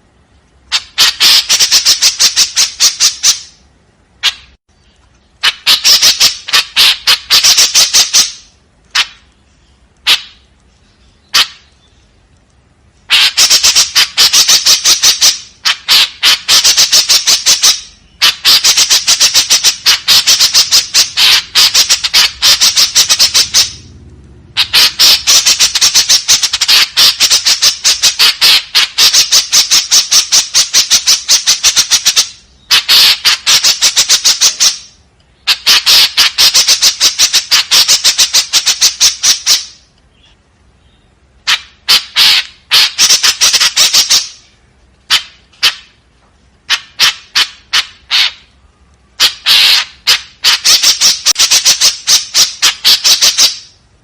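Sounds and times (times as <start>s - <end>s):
bird chattering calls: 0.7s - 3.6s, 4.2s - 12.2s, 13.1s - 46.0s, 46.7s - 48.6s, 49.2s - 53.8s.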